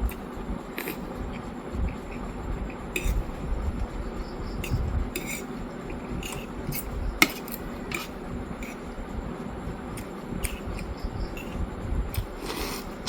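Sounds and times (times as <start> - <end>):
cutlery clinking against a dish: 2.9 - 3.3, 4.6 - 8.9, 10.0 - 11.6.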